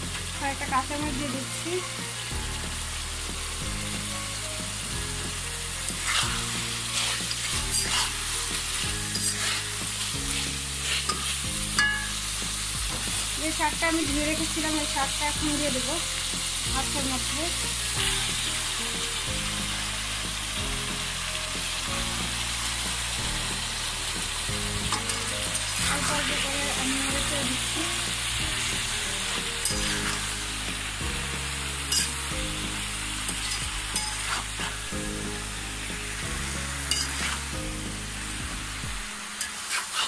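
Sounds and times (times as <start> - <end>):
food sizzling in a hot pan: 0.0 - 40.0.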